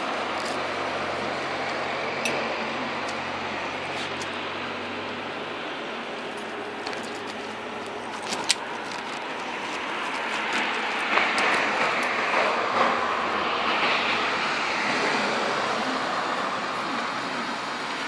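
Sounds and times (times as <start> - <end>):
car engine running low: 0.0 - 18.0
street noise: 0.0 - 18.0.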